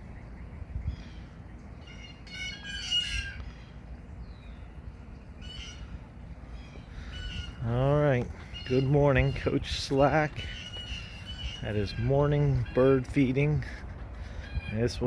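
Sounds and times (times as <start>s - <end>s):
bird calling: 0.0s - 15.0s
steady low rumble: 3.3s - 14.9s.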